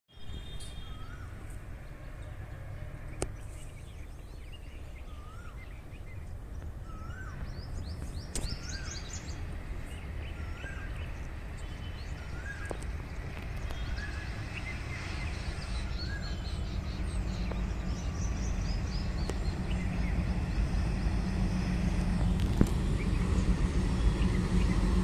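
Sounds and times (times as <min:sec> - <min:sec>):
birds chirping: 0:00.1 - 0:21.0, 0:22.4 - 0:25.0
bird whistled call: 0:00.2 - 0:01.4
steady low rumble: 0:00.9 - 0:25.0.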